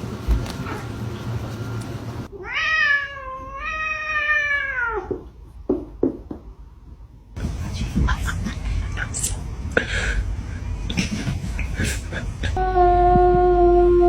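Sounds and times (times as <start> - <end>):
cat meowing: 2.3 - 5.2
low hum: 6.6 - 14.0.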